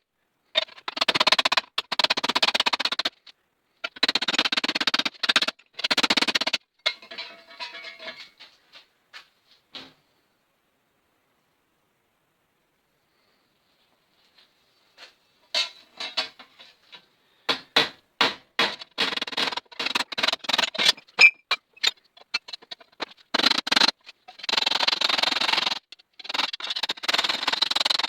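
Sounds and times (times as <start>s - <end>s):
tools tapping sheet steel: 6.9s - 8.4s, 15.5s - 16.5s
scraping on metal: 6.9s - 8.6s, 18.7s - 28.0s.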